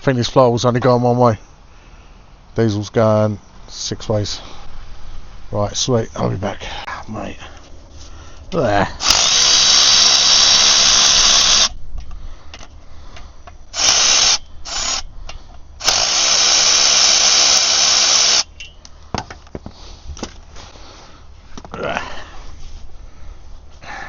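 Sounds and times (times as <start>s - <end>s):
power tool undoing bolts: 9.0s - 11.8s, 13.7s - 15.0s, 15.8s - 18.5s.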